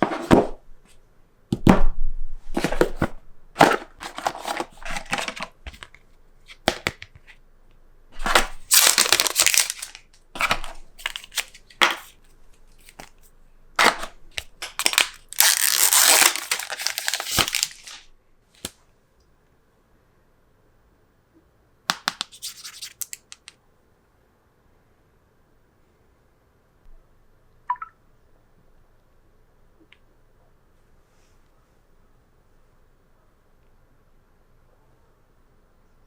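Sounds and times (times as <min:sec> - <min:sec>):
cardboard and plastic rustling: 0:02.5 - 0:06.0, 0:08.2 - 0:12.2, 0:13.8 - 0:18.0.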